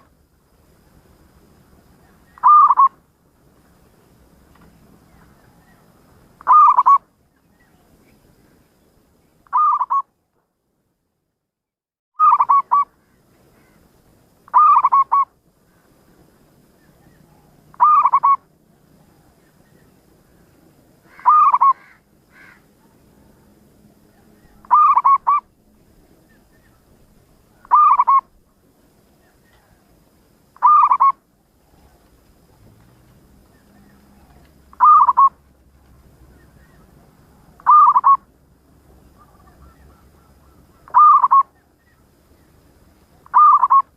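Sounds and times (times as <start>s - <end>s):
dove cooing: 2.3s - 2.9s, 6.4s - 7.0s, 9.5s - 10.0s, 12.2s - 12.9s, 14.5s - 15.3s, 17.0s - 19.3s, 21.1s - 23.0s, 24.2s - 25.5s, 27.6s - 28.4s, 30.6s - 32.1s, 33.5s - 35.4s, 36.3s - 38.3s, 39.0s - 42.1s, 43.2s - 43.9s.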